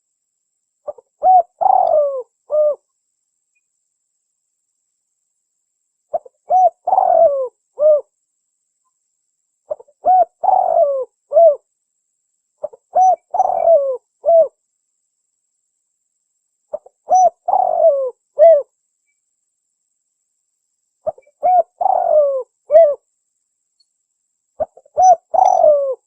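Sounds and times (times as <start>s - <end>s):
dove cooing: 0.9s - 2.8s, 6.1s - 8.1s, 9.7s - 11.6s, 12.6s - 14.6s, 16.7s - 18.7s, 21.0s - 23.0s, 24.6s - 26.0s.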